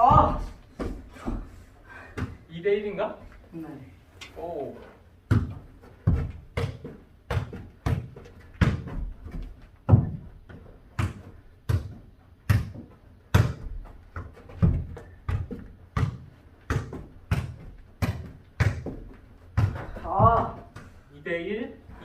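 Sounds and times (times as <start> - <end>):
ball thudding on hard floor: 5.3 - 20.9.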